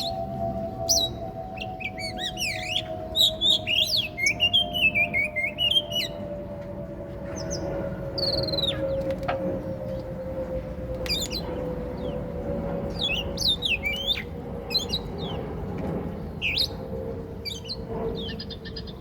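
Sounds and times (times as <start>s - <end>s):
bird singing whistles and chirps: 0.0s - 6.2s, 11.1s - 12.2s, 12.9s - 15.5s, 16.4s - 16.8s
steady low hum: 0.0s - 19.0s.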